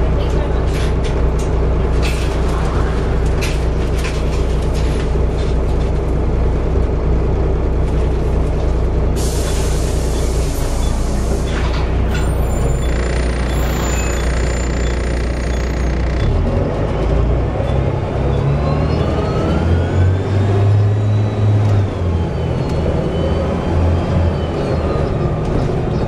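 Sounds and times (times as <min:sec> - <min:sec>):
bus diesel engine running: 0:00.0 - 0:26.0
air brakes hissing: 0:09.2 - 0:12.8.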